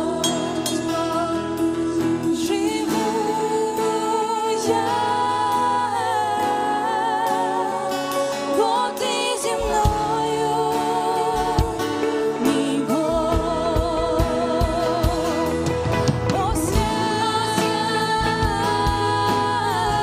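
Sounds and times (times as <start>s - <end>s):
group singing worship song: 0.0s - 20.0s
sustained instrumental accompaniment: 0.0s - 20.0s.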